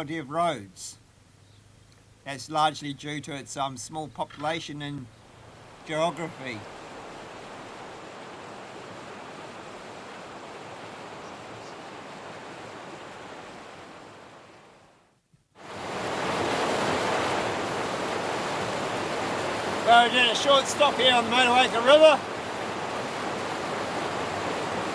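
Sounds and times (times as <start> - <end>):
river water flowing: 1.0 - 15.0, 15.6 - 24.9
steady rushing noise: 16.6 - 22.3.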